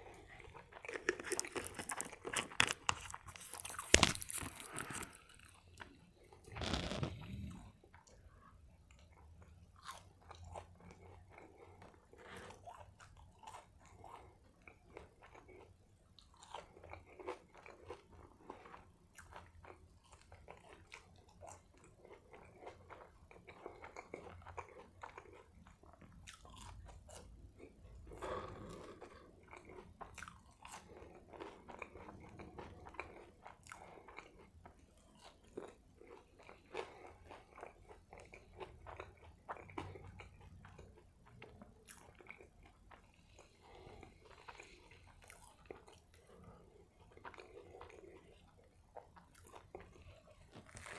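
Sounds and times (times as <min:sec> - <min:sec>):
person chewing food: 0:00.0 - 0:50.9
wet mouth clicks and crunches: 0:00.8 - 0:05.3.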